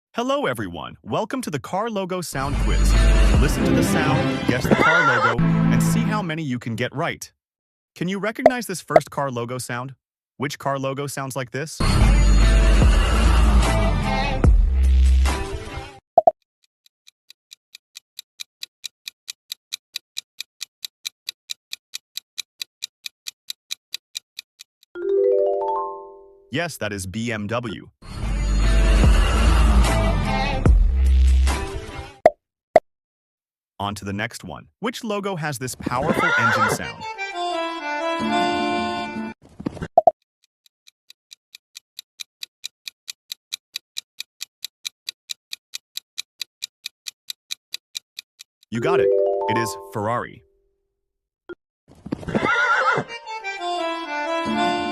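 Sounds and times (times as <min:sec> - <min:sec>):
countdown timer ticking: 0:02.7 - 0:04.7, 0:41.1 - 0:50.5
clock ticking: 0:16.2 - 0:25.0, 0:40.0 - 0:50.2.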